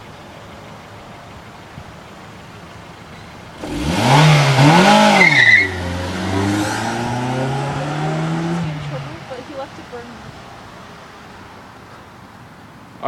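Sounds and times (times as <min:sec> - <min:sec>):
car engine revving: 0:02.8 - 0:11.7
tyre squeal: 0:04.9 - 0:07.2.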